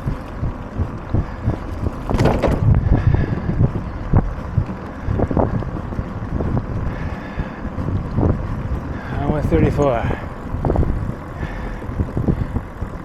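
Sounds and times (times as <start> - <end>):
wind rushing over microphone: 0.0 - 13.0
irregular knocks and thumps: 0.8 - 3.2.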